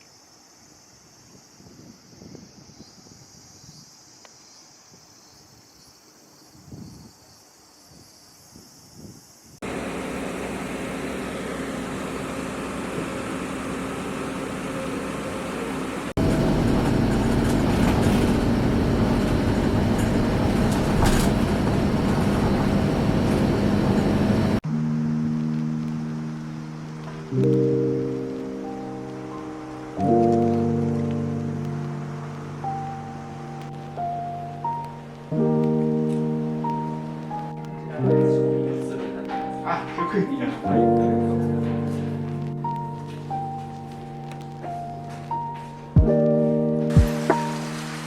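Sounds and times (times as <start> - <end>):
insect chirring: 0.0 - 9.6, 24.7 - 38.2
train rumbling: 9.6 - 24.6
music: 24.6 - 48.0.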